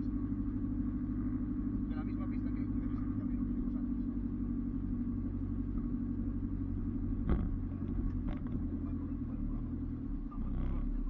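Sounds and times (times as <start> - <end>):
vehicle engine running at low revs: 0.0 - 11.0.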